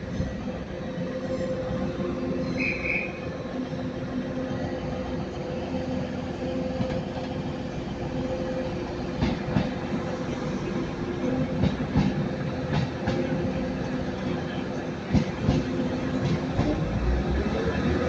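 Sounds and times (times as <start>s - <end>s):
train engines humming: 0.0s - 18.0s
wheels clacking over rail joints: 15.1s - 18.0s.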